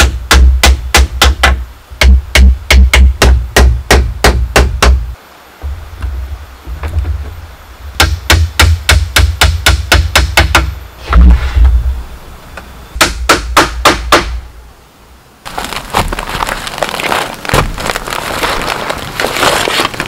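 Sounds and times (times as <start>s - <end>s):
hammer strikes: 0.0s - 5.0s, 8.0s - 11.4s, 13.0s - 14.4s
steady crackling hiss: 0.0s - 20.0s.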